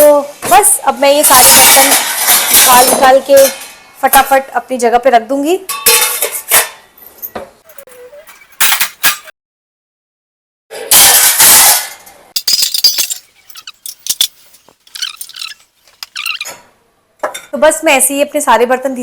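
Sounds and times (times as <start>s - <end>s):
dishes and utensils clinking: 12.4s - 16.4s.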